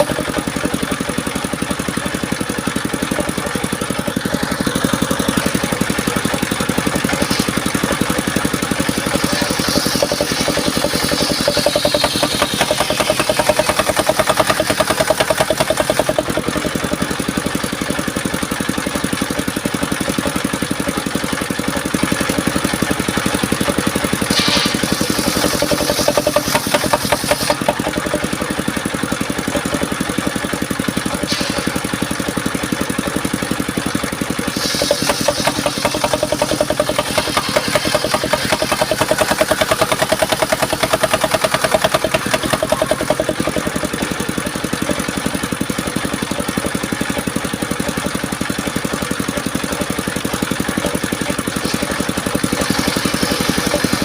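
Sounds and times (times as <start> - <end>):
sawmill engine pulsing: 0.0 - 54.0
saw blade cutting wood hiss: 6.9 - 16.8, 24.1 - 28.4, 31.0 - 32.4, 34.2 - 43.6, 51.3 - 54.0.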